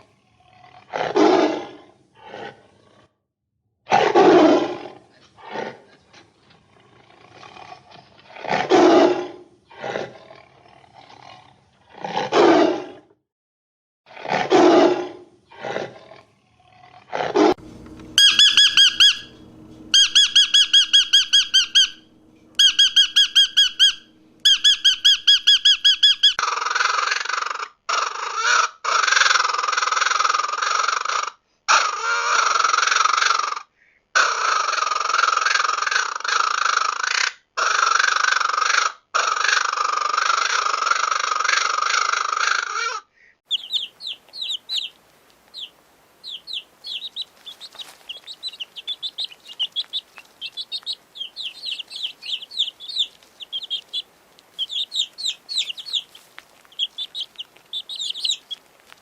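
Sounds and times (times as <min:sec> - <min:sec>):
harsh drawn-out animal call: 0:00.0 - 0:03.2, 0:14.1 - 0:59.0
roar-like animal calls: 0:00.0 - 0:03.2, 0:06.7 - 0:13.1, 0:14.1 - 0:17.6, 0:46.2 - 0:58.6
high-pitched animal squeaks: 0:18.2 - 0:33.4, 0:34.2 - 0:59.0.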